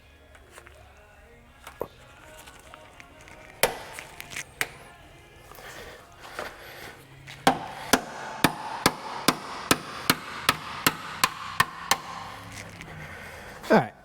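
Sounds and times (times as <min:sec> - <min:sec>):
hammer blows on metal: 0:07.4 - 0:12.9.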